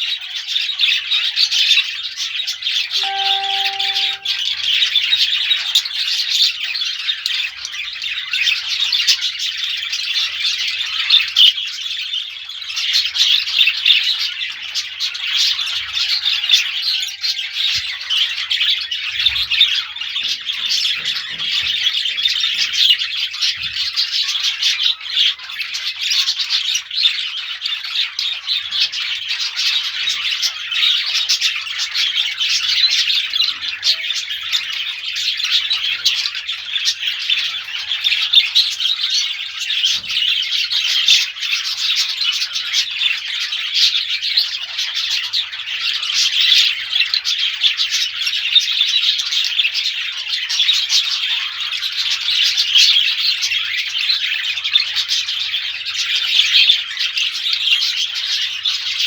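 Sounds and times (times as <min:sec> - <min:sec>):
small birds chirping: 0:03.0 - 0:04.4, 0:33.5 - 0:59.0.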